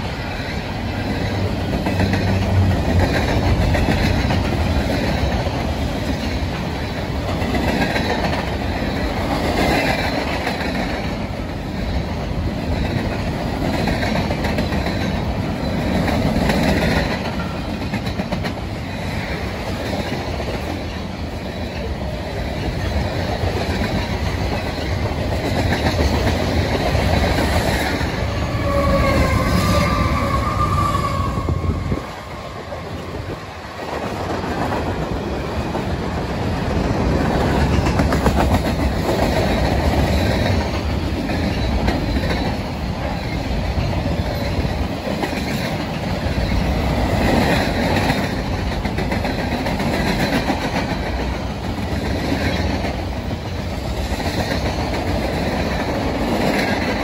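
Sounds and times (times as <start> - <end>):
freight train rolling past: 0.0 - 57.0
high wheel squeal: 28.2 - 33.1.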